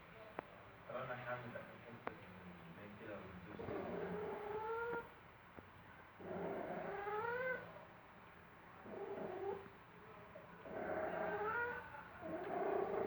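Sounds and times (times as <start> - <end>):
cat yowling: 6.4 - 7.7, 10.7 - 13.0.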